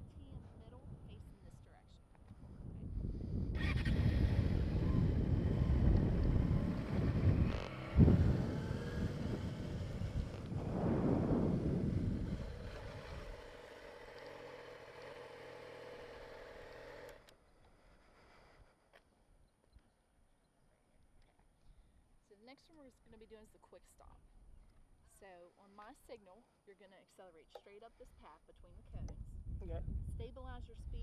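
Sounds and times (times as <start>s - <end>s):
wind buffeting microphone: 0.0s - 13.7s, 28.7s - 31.0s
motorcycle engine: 3.5s - 17.3s.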